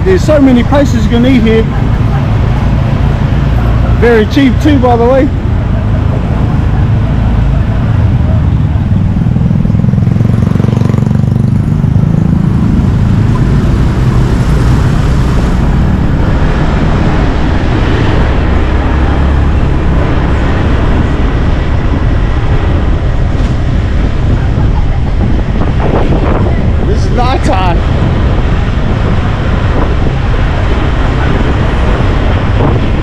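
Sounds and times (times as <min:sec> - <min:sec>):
road and traffic noise: 0:00.0 - 0:33.0
motorbike engine running: 0:08.1 - 0:14.6.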